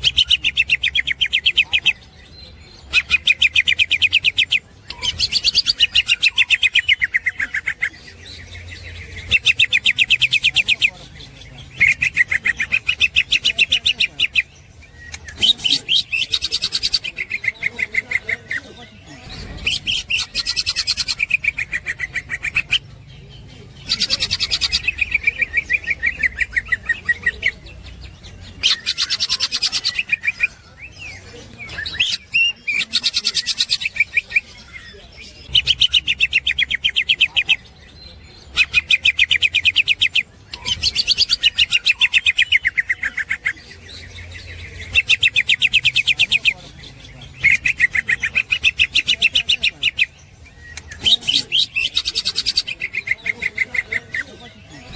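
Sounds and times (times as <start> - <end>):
bird trilling song: 0.0 - 54.9.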